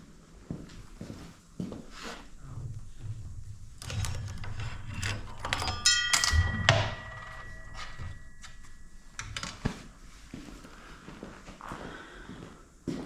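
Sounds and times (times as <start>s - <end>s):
struck metal part ringing: 2.3s - 10.1s
metal tools clinking and knocking: 3.5s - 10.0s.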